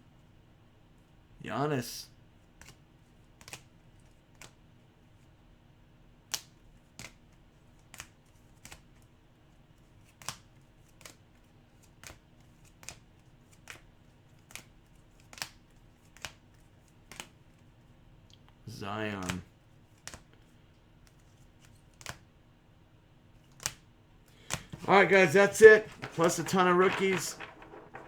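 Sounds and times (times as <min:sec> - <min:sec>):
cards set down clicking: 0:24.4 - 0:28.0.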